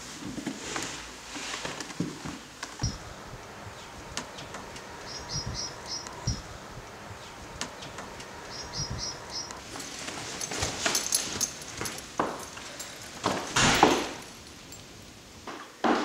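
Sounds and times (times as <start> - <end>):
small bird chirping: 4.8 - 6.5, 8.3 - 9.6
backpack rustling and clicking: 9.6 - 14.8.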